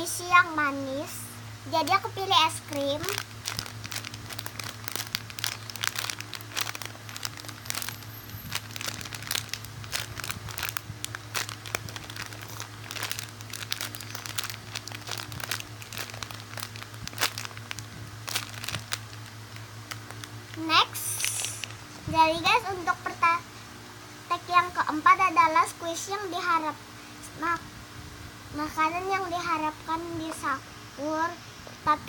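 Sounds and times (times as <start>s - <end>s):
low electrical hum: 0.0s - 32.0s
squishy toy crinkling: 2.7s - 21.8s.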